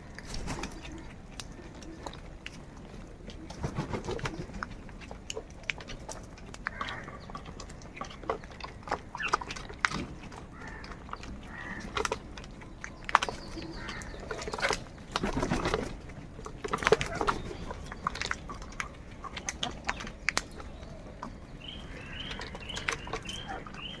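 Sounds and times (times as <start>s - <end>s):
crows cawing harshly: 10.5s - 10.9s, 11.5s - 11.9s.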